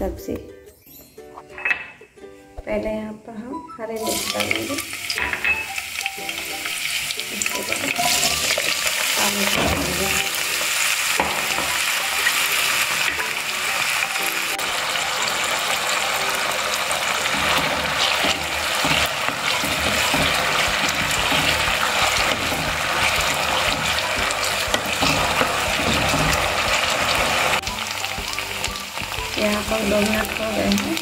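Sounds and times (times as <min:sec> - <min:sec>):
potatoes sizzling in oil: 0:04.0 - 0:31.0
wooden spatula stirring: 0:17.2 - 0:27.6.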